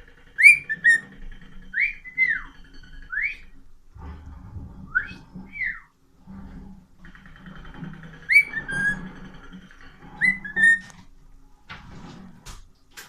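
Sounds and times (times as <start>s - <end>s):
cockatiel whistling: 0.4s - 1.0s, 1.7s - 2.5s, 3.1s - 3.5s, 4.9s - 5.9s, 8.3s - 9.0s, 10.2s - 10.9s.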